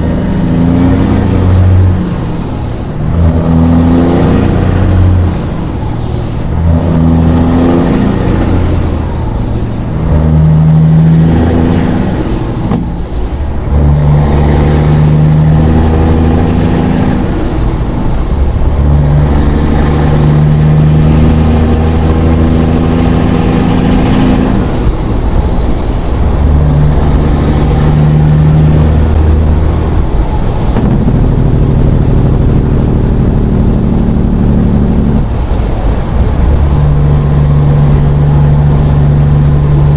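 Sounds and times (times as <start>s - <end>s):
diesel truck engine shifting gears: 0.0s - 39.9s.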